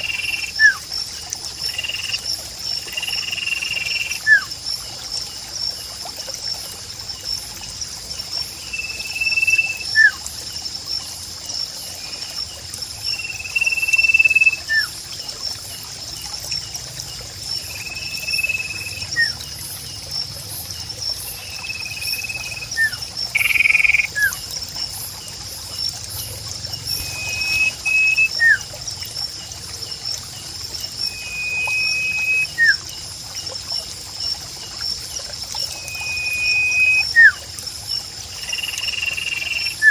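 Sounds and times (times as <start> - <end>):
trickling water: 0.0 - 39.9
songbird whistling: 17.9 - 19.4, 26.9 - 28.6, 31.1 - 32.8, 35.8 - 37.4, 38.9 - 39.9.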